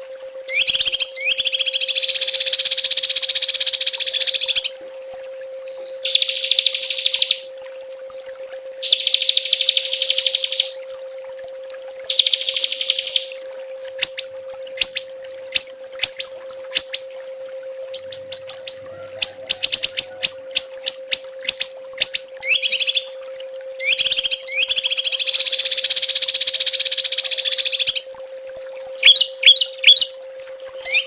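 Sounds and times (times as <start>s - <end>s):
faint steady hum: 0.0s - 31.0s
songbirds buzzy trills: 0.0s - 31.0s
sharp high bird chirps: 0.5s - 4.7s, 5.8s - 7.4s, 8.1s - 10.8s, 12.1s - 13.3s, 14.0s - 17.1s, 18.0s - 18.8s, 19.6s - 23.1s, 23.8s - 28.0s.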